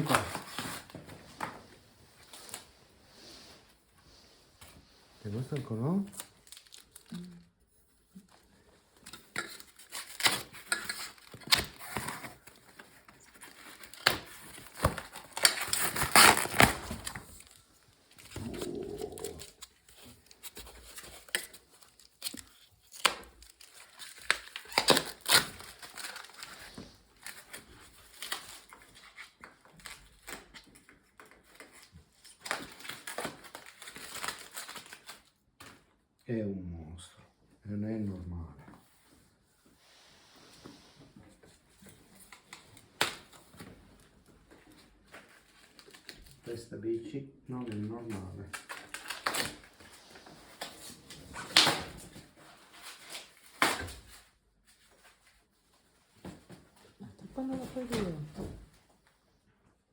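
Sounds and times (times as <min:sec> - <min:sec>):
packaging crinkling and tearing: 0:05.3 - 0:07.4, 0:09.0 - 0:35.4, 0:44.7 - 0:46.4, 0:47.7 - 0:55.4.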